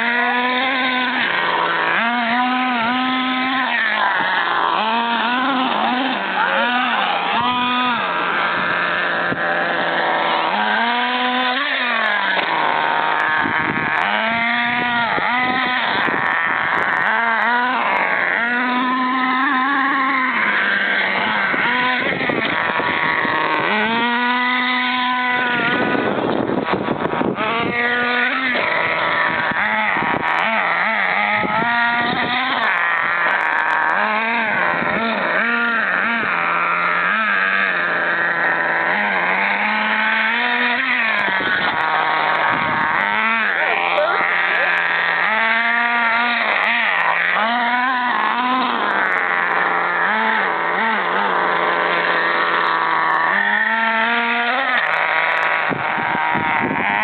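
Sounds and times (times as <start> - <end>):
small engine revving: 0.0 - 57.0.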